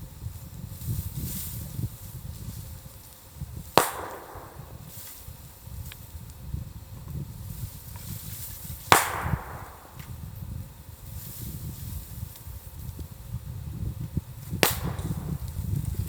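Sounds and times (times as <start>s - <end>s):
low steady rumble: 0.0s - 16.0s
bamboo bursting bangs in fire: 3.6s - 5.4s, 8.0s - 10.2s, 14.4s - 16.0s.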